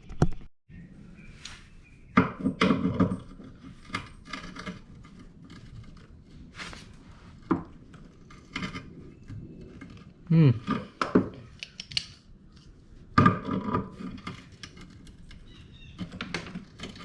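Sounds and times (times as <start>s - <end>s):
wrench knocking and scraping on metal: 2.1s - 6.2s, 13.1s - 17.0s.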